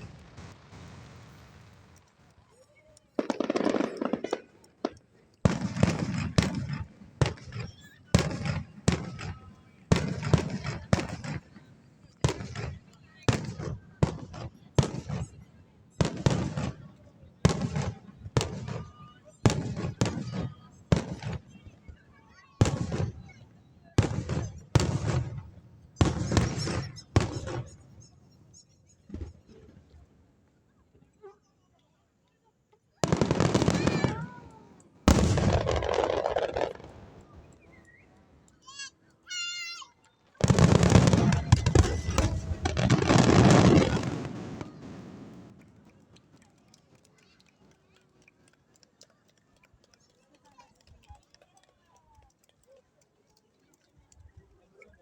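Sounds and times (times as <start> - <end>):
fireworks crackling: 0.0 - 30.1, 33.0 - 39.7, 40.3 - 52.6
fireworks bang: 3.2 - 11.6, 22.6 - 23.4, 24.0 - 28.1, 33.0 - 37.8, 40.4 - 45.7.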